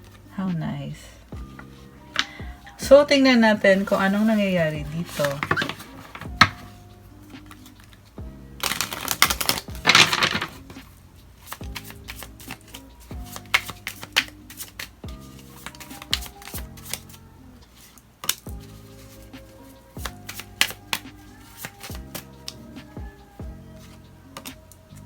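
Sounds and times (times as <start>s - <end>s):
soft background music: 0.0s - 25.0s
cards being shuffled: 1.4s - 2.4s, 3.3s - 25.0s
card taps and slides: 3.7s - 6.8s, 7.4s - 8.0s, 8.6s - 23.2s, 23.8s - 24.8s.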